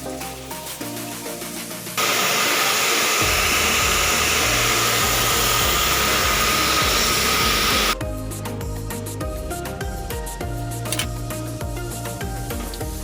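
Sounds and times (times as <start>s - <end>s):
rushing hiss with whine: 0.0s - 8.0s
background music: 0.0s - 13.0s.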